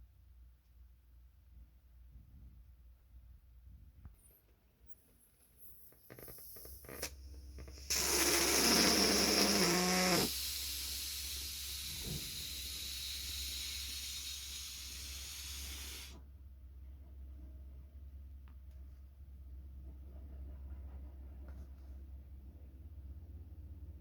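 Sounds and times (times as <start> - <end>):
air hissing from balloon neck: 5.7 - 16.2.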